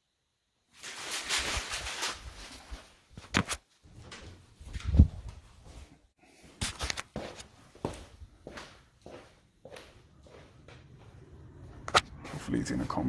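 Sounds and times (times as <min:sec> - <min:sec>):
rustling handling noise: 0:00.7 - 0:04.0.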